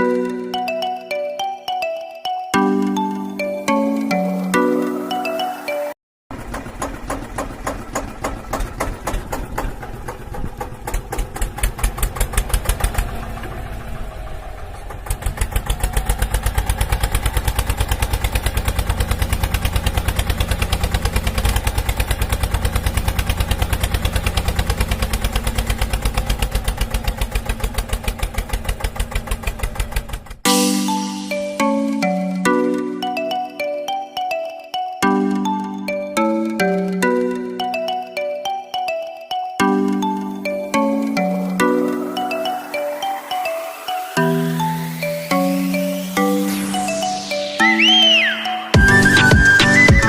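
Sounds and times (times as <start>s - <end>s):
small tractor motor chugging: 6.3s - 30.5s.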